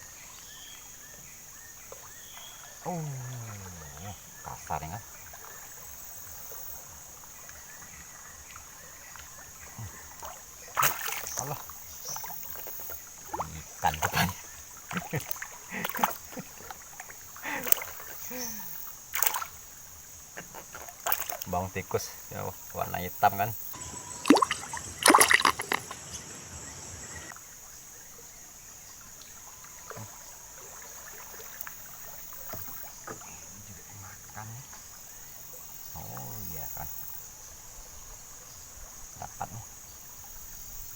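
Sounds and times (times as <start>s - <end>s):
faint water sounds: 0.0s - 40.9s
insect drone: 0.0s - 40.9s.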